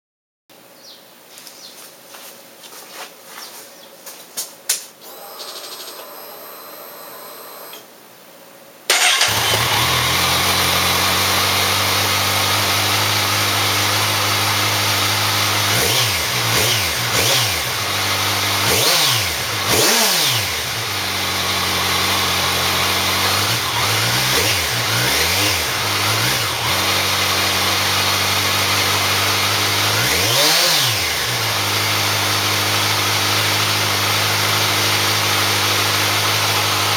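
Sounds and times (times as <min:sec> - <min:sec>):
motorcycle engine starting and idling: 0:08.9 - 0:36.9.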